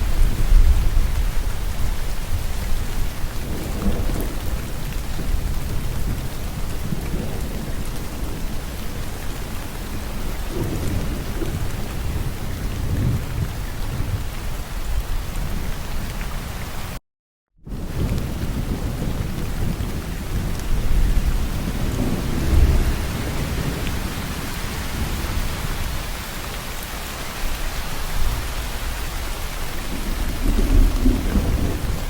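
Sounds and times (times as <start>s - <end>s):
low thunder rumble: 0.0s - 16.3s, 17.7s - 26.5s, 27.4s - 32.0s
rain falling: 0.0s - 17.0s, 17.7s - 32.0s.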